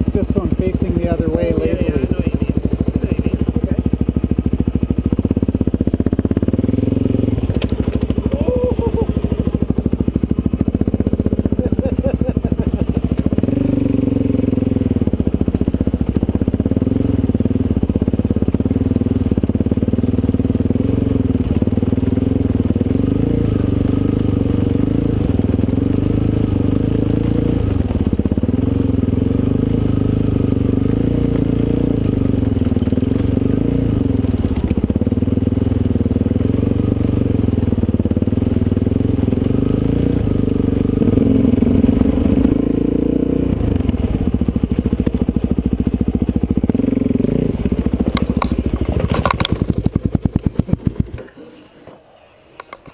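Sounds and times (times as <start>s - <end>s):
motorcycle engine running: 0.0s - 51.7s.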